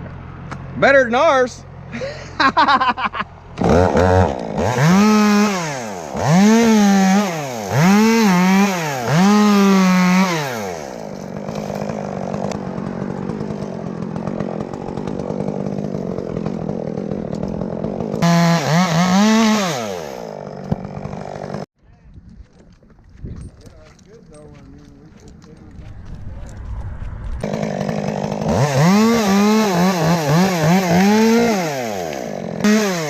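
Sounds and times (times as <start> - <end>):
chainsaw engine revving: 3.4 - 21.7, 25.4 - 33.0.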